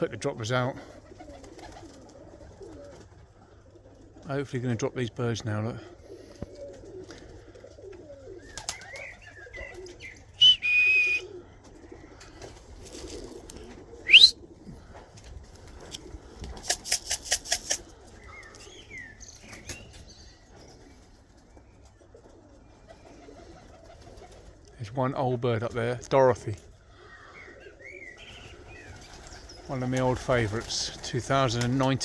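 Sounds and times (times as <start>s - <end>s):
pigeons cooing: 0.0s - 24.8s, 26.5s - 32.0s
high held whistle: 10.4s - 11.2s, 14.1s - 14.4s
loud rising whistle: 10.4s - 11.2s, 14.1s - 14.4s
wing flaps: 15.2s - 17.9s.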